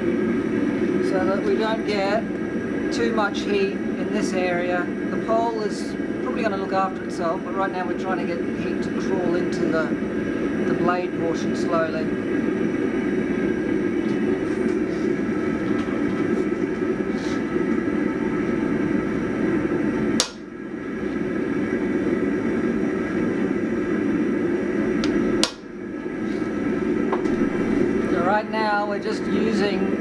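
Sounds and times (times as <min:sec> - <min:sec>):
sharp clicks: 0:20.2 - 0:20.5, 0:25.0 - 0:25.7.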